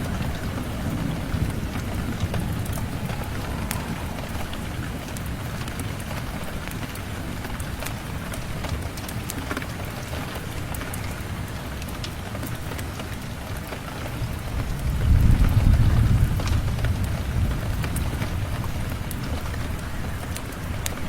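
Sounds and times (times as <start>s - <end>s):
thunder rumbling: 0.0s - 9.0s, 14.1s - 21.0s
steady rain: 0.0s - 21.0s.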